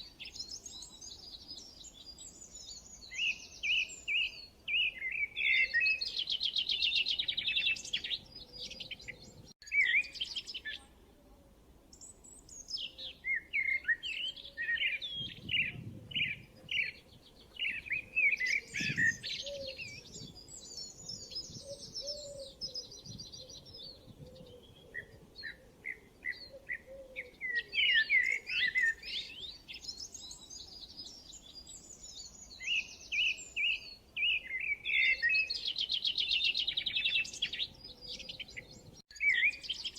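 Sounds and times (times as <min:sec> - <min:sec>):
songbirds singing and chirping: 0:00.0 - 0:11.1, 0:11.8 - 0:39.9.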